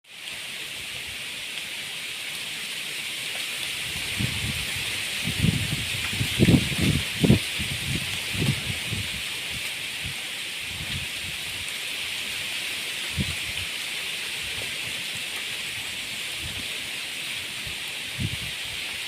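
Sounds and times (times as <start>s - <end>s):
leaves rustling in wind: 0.0s - 19.0s
wind buffeting microphone: 3.8s - 11.7s, 13.0s - 13.7s, 17.6s - 19.0s.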